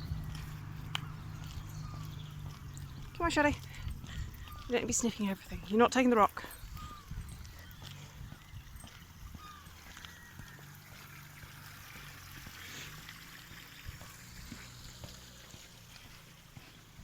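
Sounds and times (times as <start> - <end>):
water trickling: 0.0 - 17.0.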